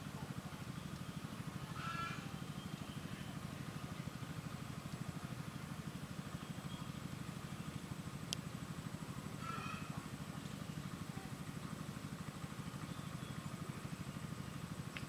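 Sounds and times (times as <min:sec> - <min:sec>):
engine idling: 0:00.0 - 0:15.0
bird call: 0:00.7 - 0:03.4, 0:09.4 - 0:10.0, 0:12.8 - 0:13.6.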